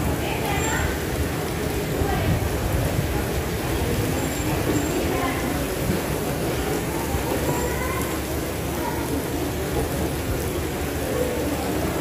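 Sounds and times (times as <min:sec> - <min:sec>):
rain falling: 0:00.0 - 0:12.0.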